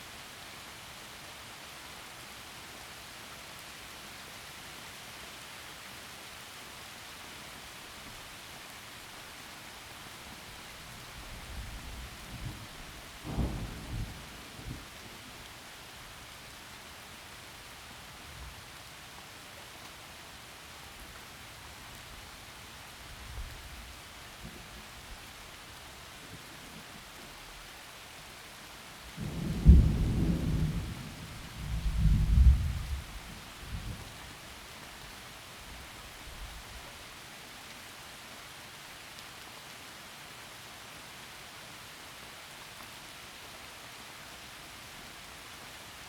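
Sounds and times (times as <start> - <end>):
heavy rain through trees: 0.0 - 46.0
low rumble of thunder: 11.0 - 15.6, 29.1 - 34.2.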